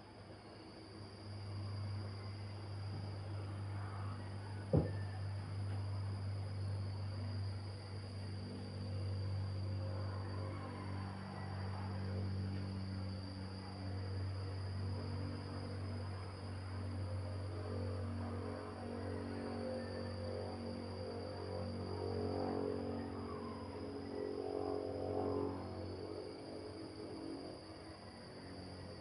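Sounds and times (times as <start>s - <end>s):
constant low hum: 0.0s - 29.0s
short knock: 4.7s - 5.0s.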